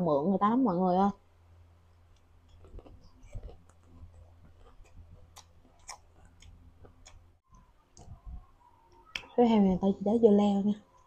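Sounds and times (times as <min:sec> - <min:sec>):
low steady hum: 0:00.0 - 0:11.0
mouth chewing fruit: 0:02.5 - 0:08.2.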